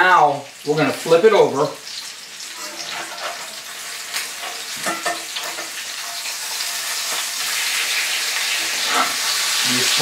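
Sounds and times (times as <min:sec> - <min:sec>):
meat sizzling in oil: 0:00.0 - 0:10.0
metal spatula scraping a pan: 0:02.4 - 0:09.6.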